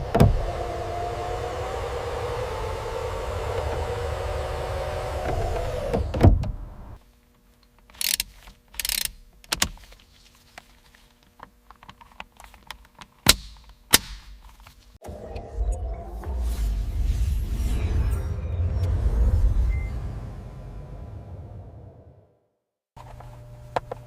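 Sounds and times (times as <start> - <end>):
motor rumbling: 0.0 - 7.0.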